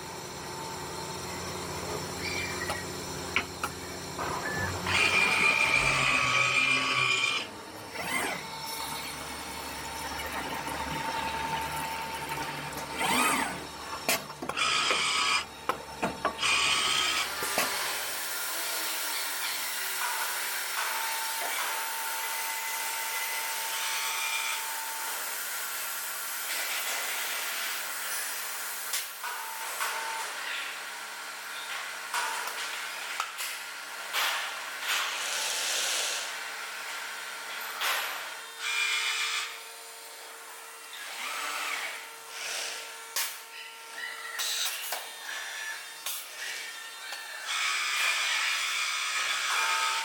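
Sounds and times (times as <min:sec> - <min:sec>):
cutting machine whining: 0:00.0 - 0:25.3.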